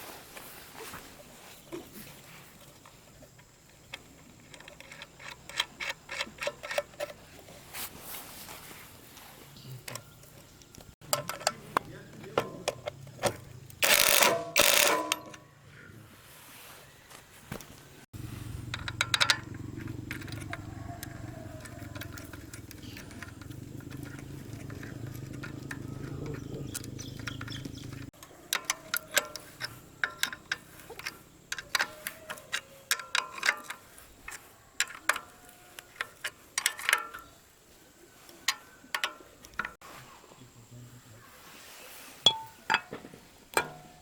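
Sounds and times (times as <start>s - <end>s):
machine clicks: 13.7s - 15.4s
small metal parts clinking: 13.7s - 15.4s, 18.6s - 37.4s.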